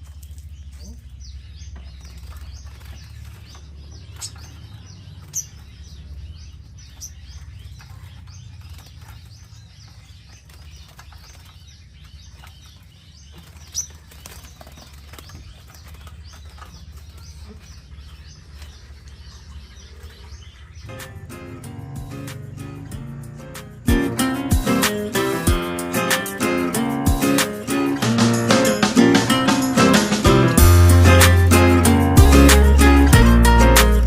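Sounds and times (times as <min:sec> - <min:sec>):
small birds chirping: 0:00.0 - 0:34.0
low steady rumble: 0:15.9 - 0:24.2.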